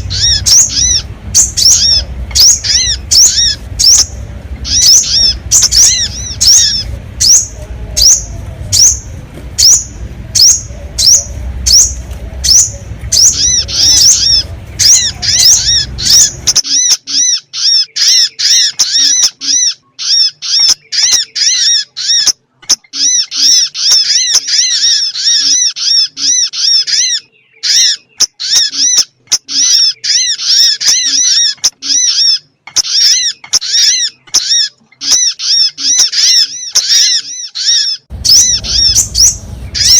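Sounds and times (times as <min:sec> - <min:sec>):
low rumble: 0:00.0 - 0:16.6, 0:38.1 - 0:39.9
bird lure call: 0:00.0 - 0:39.9.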